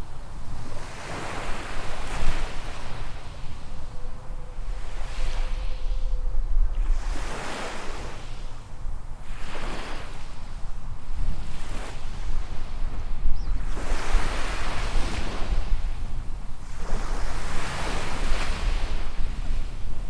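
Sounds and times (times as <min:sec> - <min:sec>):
small waves breaking on beach: 0:06.8 - 0:20.0.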